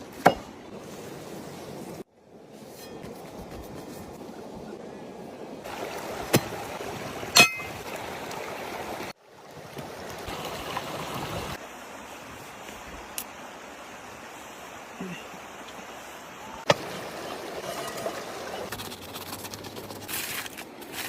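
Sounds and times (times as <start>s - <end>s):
running water: 5.3s - 21.0s.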